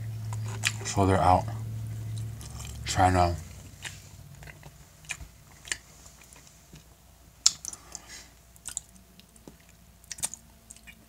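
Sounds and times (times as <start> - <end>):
wet chewing clicks and smacks: 3.8 - 8.0, 8.6 - 11.0.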